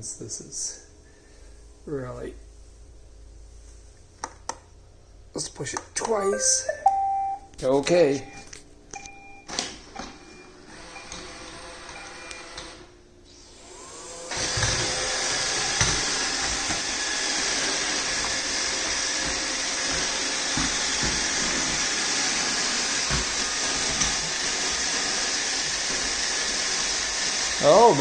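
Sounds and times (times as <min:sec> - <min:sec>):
robot vacuum whirring: 0:10.5 - 0:28.0.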